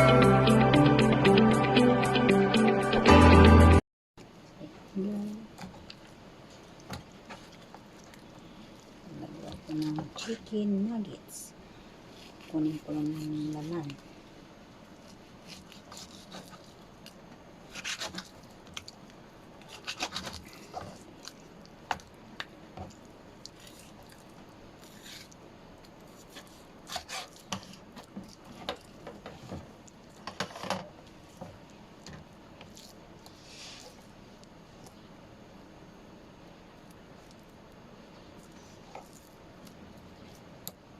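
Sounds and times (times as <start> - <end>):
rubbing and scraping of meat: 12.0 - 14.1, 14.9 - 19.0, 19.6 - 21.6, 22.9 - 31.7, 32.6 - 34.2.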